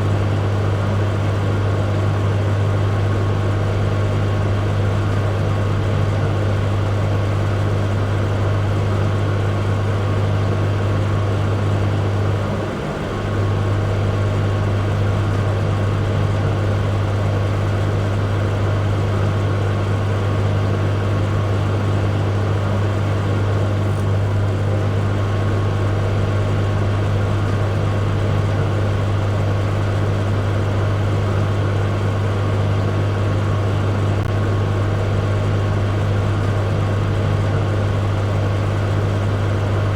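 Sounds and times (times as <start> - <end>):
microwave fan noise: 0.0 - 39.9
microwave oven hum: 0.0 - 39.9.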